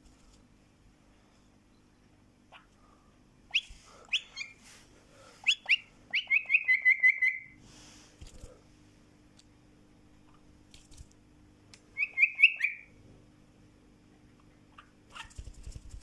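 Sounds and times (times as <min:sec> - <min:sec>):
pet bird chirping and trilling: 0:02.5 - 0:02.7, 0:03.5 - 0:04.6, 0:05.4 - 0:07.6, 0:12.0 - 0:12.9, 0:14.7 - 0:15.5.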